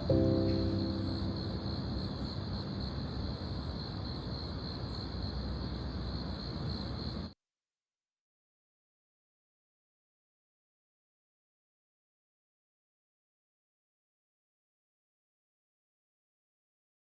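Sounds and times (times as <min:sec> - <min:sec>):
high-pitched hum: 0:00.0 - 0:03.6
soft background music: 0:00.0 - 0:03.8
outdoor background hiss: 0:00.0 - 0:07.4.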